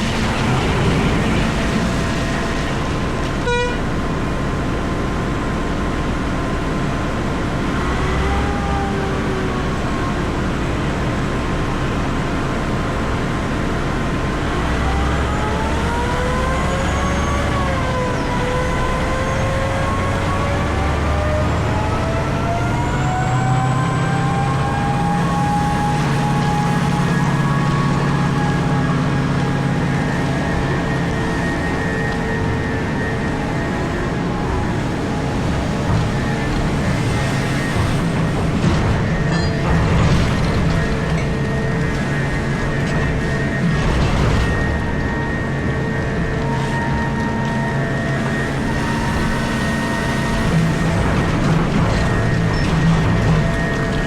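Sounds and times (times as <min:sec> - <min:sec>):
excavator engine droning: 0:00.0 - 0:54.0.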